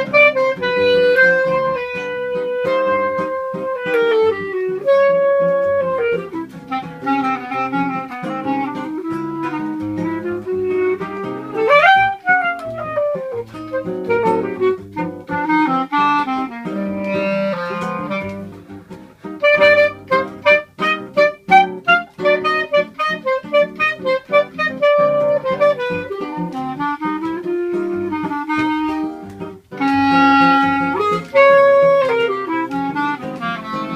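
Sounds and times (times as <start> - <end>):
acoustic guitar bass lines: 0.0 - 22.2
clarinet melody: 0.0 - 33.9.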